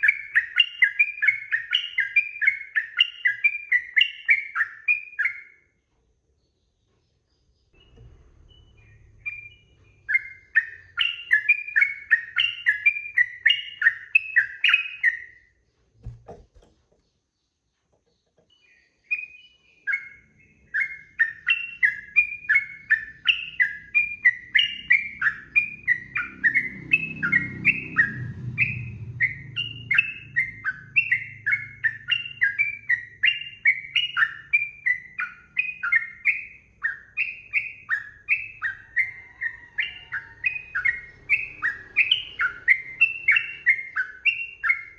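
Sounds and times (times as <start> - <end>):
bird chattering song: 0.0 - 5.7, 6.4 - 15.4, 16.0 - 44.9
low knock: 16.0 - 17.0.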